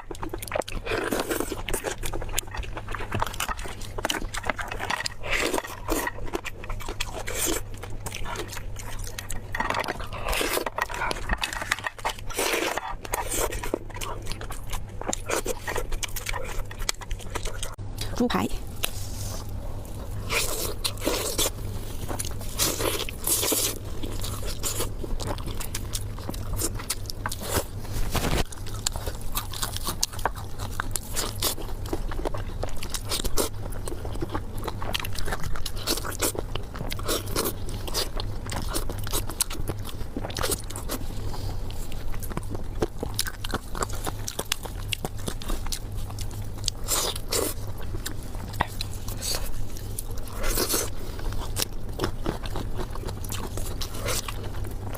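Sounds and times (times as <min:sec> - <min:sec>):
crunchy chewing: 0:00.0 - 0:54.9
steady low hum: 0:00.0 - 0:54.9.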